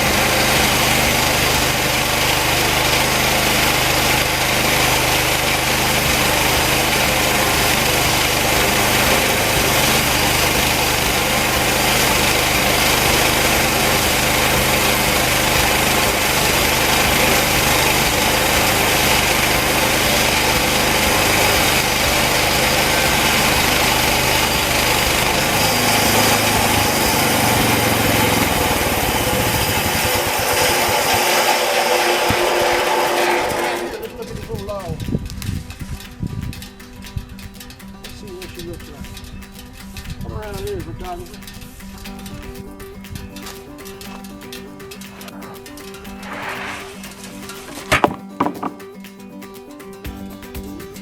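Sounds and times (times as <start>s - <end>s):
sawmill engine running: 0.0s - 34.4s, 43.5s - 48.8s
band blade cutting wood: 45.1s - 48.8s.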